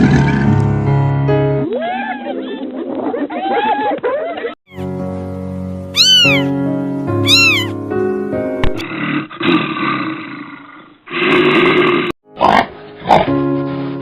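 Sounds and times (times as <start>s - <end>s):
background music: 4.7s - 8.8s
cat meowing: 6.0s - 6.6s, 7.2s - 7.8s.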